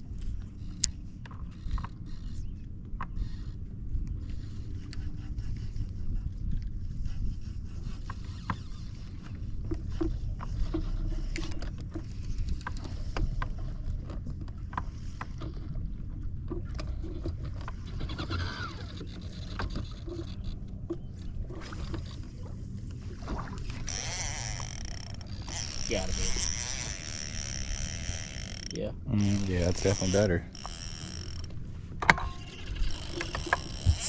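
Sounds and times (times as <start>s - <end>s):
fishing boat engine rumble: 0.0s - 34.0s
small clicks and knocks: 23.8s - 34.0s.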